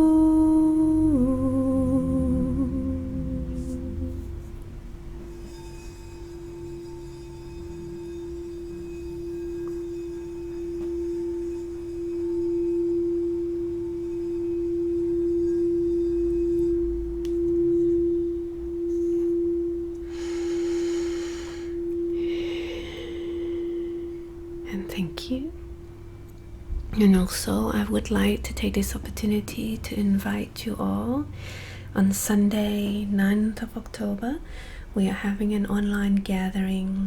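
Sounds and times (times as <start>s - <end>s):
singing bowl tone: 0.0s - 28.8s
breathy hiss: 18.9s - 24.6s, 31.3s - 32.0s.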